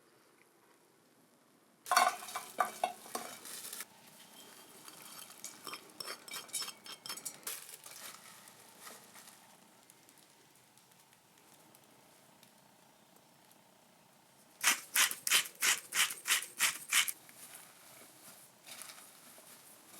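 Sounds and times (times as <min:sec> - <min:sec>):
utensil stirring against cookware: 0:04.4 - 0:08.0, 0:14.6 - 0:17.2.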